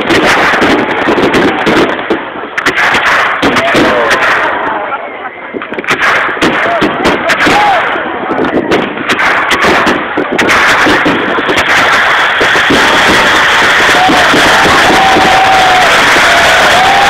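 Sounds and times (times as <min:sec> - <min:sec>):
firework bangs: 0:00.0 - 0:17.0
crowd applauding and cheering: 0:12.6 - 0:17.0
people whooping: 0:12.7 - 0:17.0.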